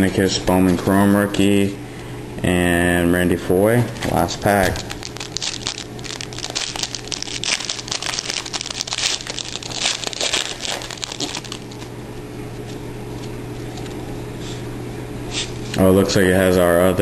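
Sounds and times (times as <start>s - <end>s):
card pack wrapper tearing: 4.0s - 11.9s.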